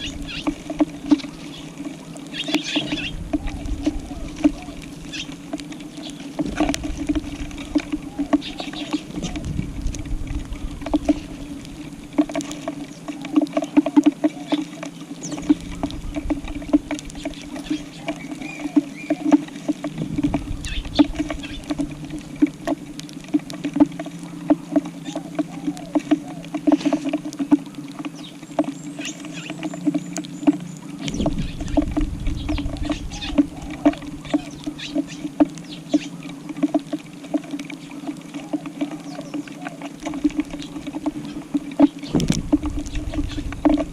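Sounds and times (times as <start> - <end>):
low rumble: 9.0 - 12.1, 19.9 - 23.0, 31.0 - 34.7.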